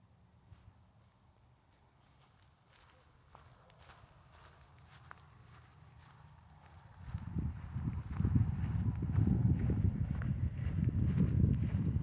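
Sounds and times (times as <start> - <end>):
microphone rumble: 7.0 - 12.0.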